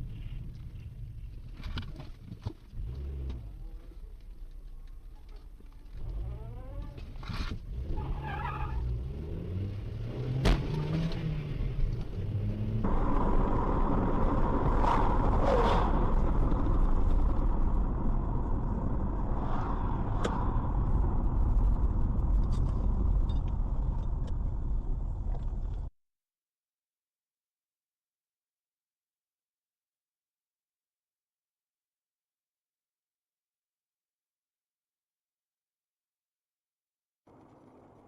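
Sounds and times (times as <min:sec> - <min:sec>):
car engine and road noise: 0:00.0 - 0:25.9, 0:37.3 - 0:38.0.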